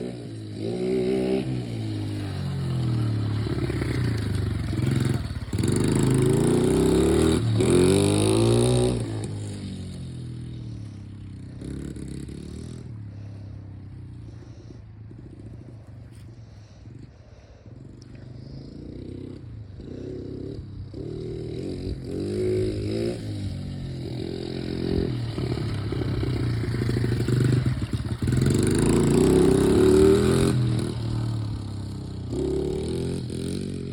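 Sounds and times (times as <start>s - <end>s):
dirt bike engine revving: 0.0s - 16.8s, 18.1s - 33.9s.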